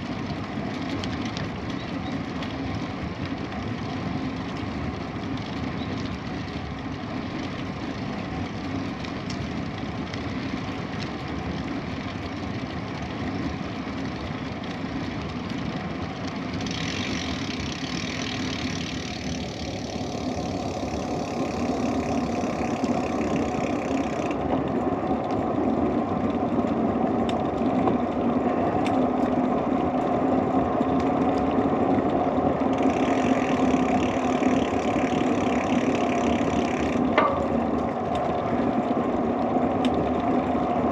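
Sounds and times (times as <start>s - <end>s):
bicycle tyres rolling on road: 0.0s - 40.9s.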